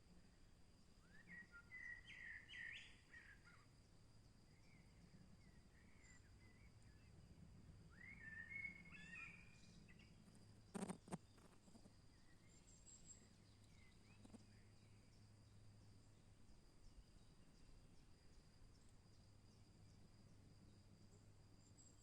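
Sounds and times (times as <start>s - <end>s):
faint high chirp: 1.0s - 3.7s, 4.5s - 7.1s, 7.9s - 15.3s
songbird warbling: 1.1s - 3.6s, 7.9s - 10.1s.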